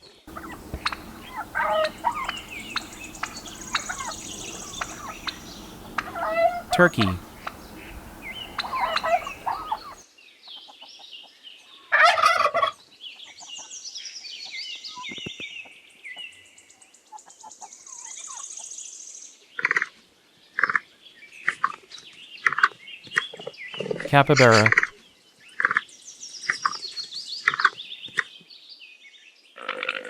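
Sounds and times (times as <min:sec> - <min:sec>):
turkey chirping calls: 0:00.3 - 0:10.0
turkey gobbling: 0:00.3 - 0:10.0.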